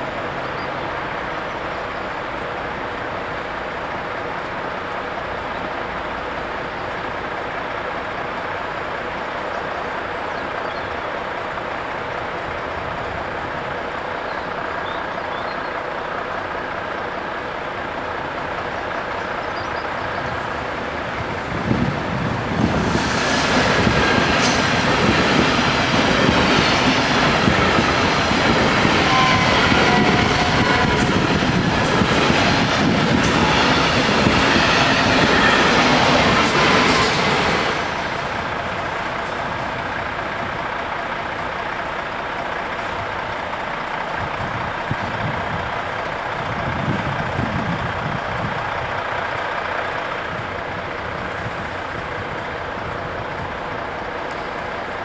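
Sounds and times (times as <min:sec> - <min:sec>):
electric train passing: 0:00.0 - 0:55.0
train wheels clicking on rail joints: 0:00.2 - 0:55.0.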